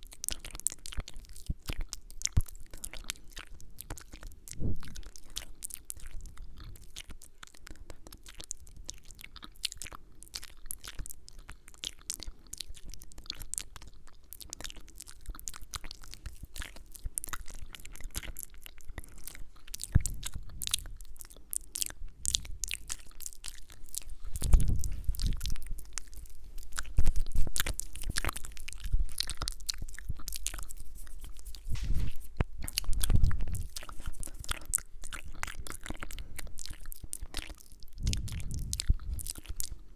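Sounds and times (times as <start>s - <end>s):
wet mouth clicks and smacks: 0.0s - 39.9s
low thumps: 31.5s - 34.0s.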